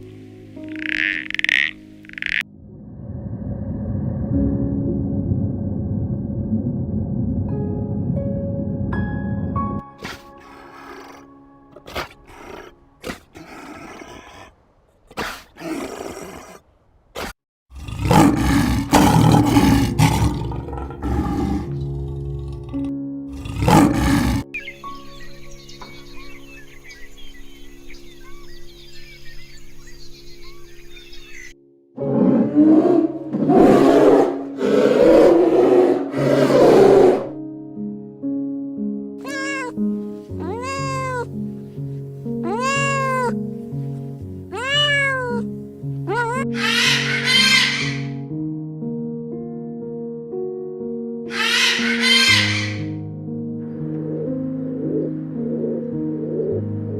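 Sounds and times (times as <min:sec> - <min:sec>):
background music with held notes: 0:00.0 - 0:02.6, 0:04.2 - 0:13.0, 0:18.1 - 0:56.9
large animal roaring: 0:02.5 - 0:09.0, 0:10.0 - 0:14.6, 0:15.2 - 0:16.6, 0:17.7 - 0:24.5, 0:32.0 - 0:37.4
cat meowing: 0:39.2 - 0:39.8, 0:40.4 - 0:41.4, 0:42.4 - 0:43.4, 0:44.5 - 0:45.5, 0:46.1 - 0:48.1, 0:51.3 - 0:52.8.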